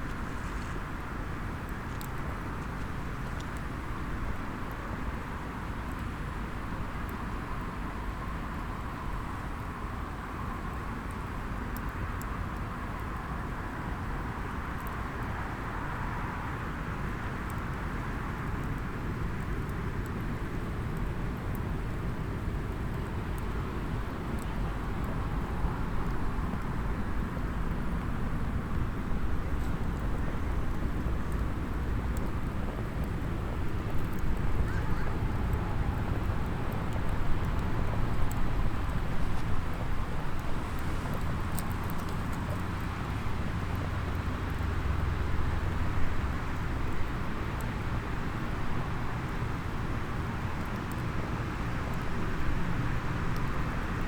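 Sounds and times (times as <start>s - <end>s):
wood fire crackling: 18.7s - 53.7s
low outdoor rumble: 20.4s - 54.0s.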